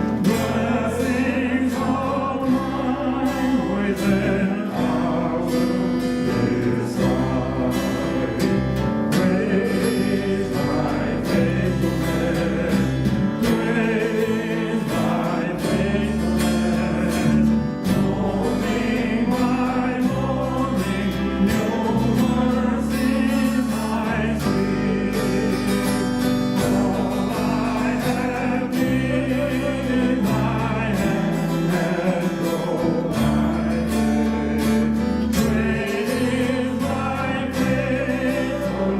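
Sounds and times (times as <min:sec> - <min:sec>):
group singing worship song: 0:00.0 - 0:38.9
sustained bass notes: 0:00.0 - 0:38.9.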